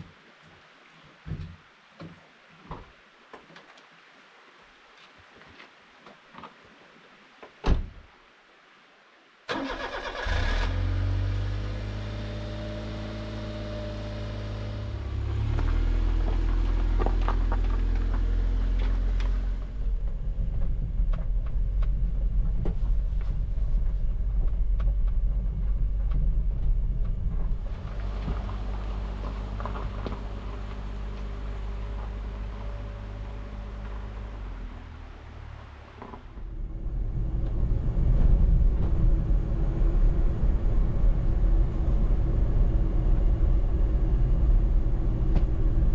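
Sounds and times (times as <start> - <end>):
thump: 7.6 - 8.0
truck engine starting and idling: 9.5 - 45.9.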